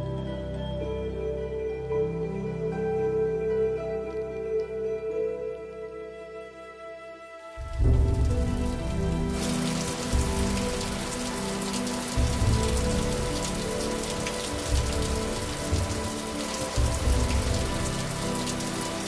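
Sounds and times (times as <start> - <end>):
faint sustained musical tone: 0.0 - 19.0
low thuds: 7.6 - 11.5
heavy rain falling: 7.6 - 19.0.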